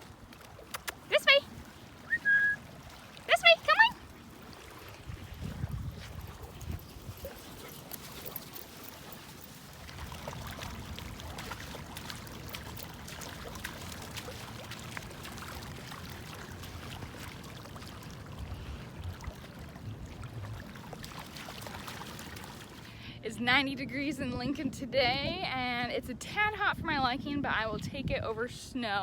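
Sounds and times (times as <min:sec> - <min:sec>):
water splashing and trickling: 0:00.0 - 0:23.2.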